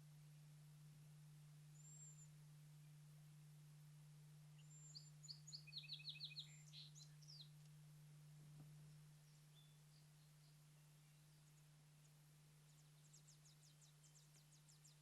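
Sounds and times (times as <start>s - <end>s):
songbird singing: 0.0s - 15.0s
steady low hum: 0.0s - 15.0s.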